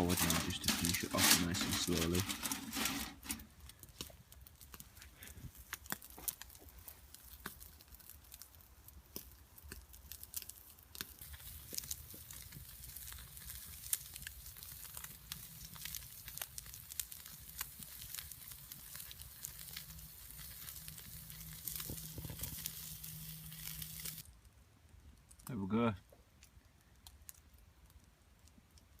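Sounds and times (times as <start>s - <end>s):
campfire crackling and popping: 0.0s - 29.0s
steak sizzling in a pan: 10.1s - 24.2s.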